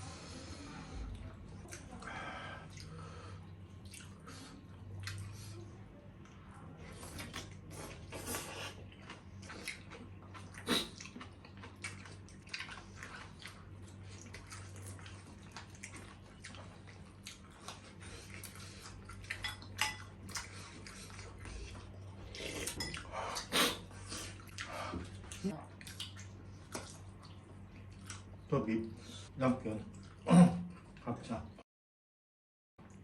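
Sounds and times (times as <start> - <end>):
steady low hum: 0.0 - 31.6
wet chewing: 1.1 - 5.6, 6.2 - 28.5
cutlery clinking on plates: 19.4 - 20.1.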